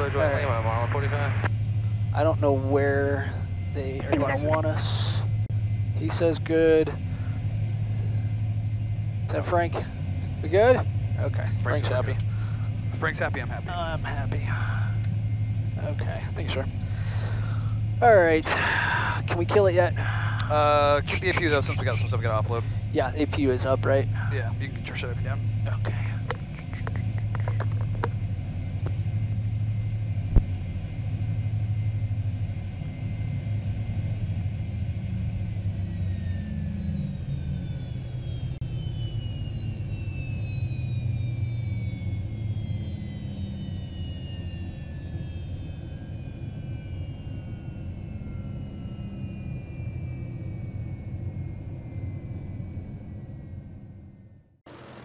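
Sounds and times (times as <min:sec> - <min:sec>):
jet engines whining: 0:00.0 - 0:55.0.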